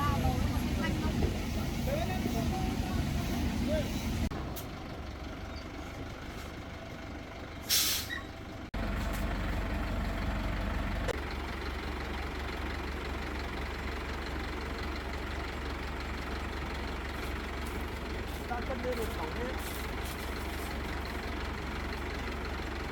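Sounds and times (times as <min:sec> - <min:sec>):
heavy diesel engine running: 0:00.0 - 0:22.9
loud air hiss: 0:07.7 - 0:08.2.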